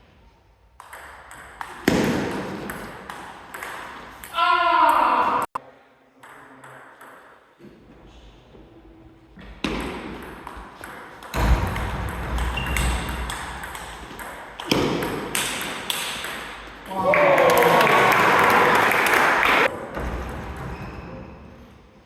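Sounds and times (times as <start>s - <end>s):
table tennis ball hits: 0.8s - 5.1s, 9.6s - 18.2s.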